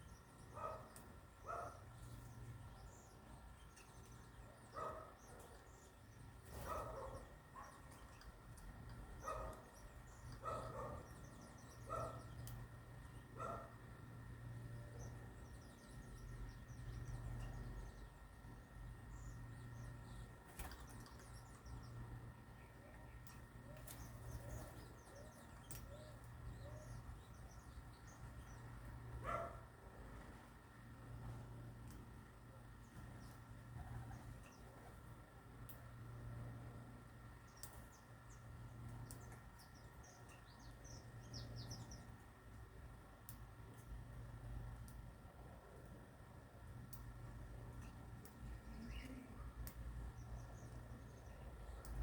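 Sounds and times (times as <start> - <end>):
small birds chirping: 0.0 - 52.0
dog barking: 0.6 - 0.9, 1.5 - 1.8, 4.8 - 5.2, 9.2 - 9.6, 10.4 - 11.0, 11.9 - 12.3, 13.4 - 13.8, 29.2 - 29.6
faint bird chirps: 47.8 - 52.0.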